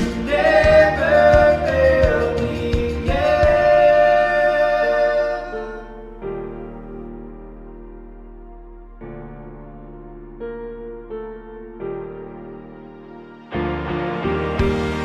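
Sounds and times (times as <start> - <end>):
voices singing held notes: 0.0 - 7.0
keyboard accompaniment: 0.0 - 15.0.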